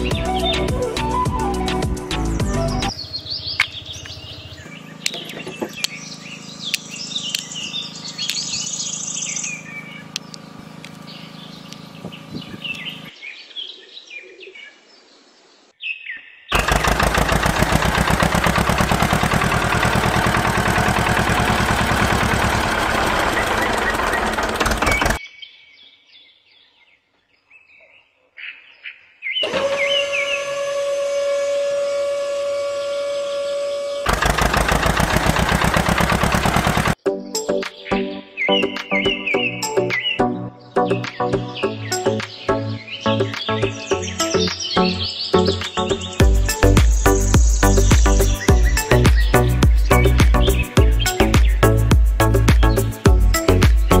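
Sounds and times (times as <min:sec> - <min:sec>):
birds chirping: 0:00.0 - 0:30.5, 0:32.8 - 0:54.0
pulsing machine noise: 0:16.5 - 0:25.2, 0:29.4 - 0:37.0.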